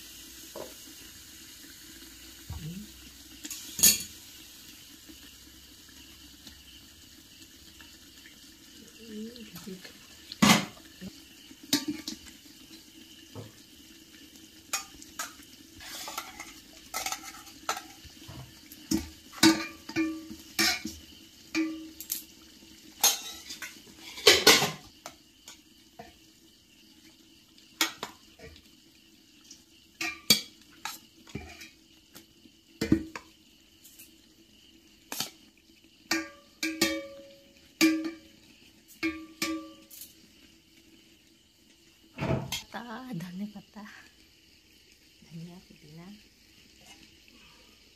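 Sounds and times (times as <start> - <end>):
metal spoon clinking on pot: 39.0 - 40.0.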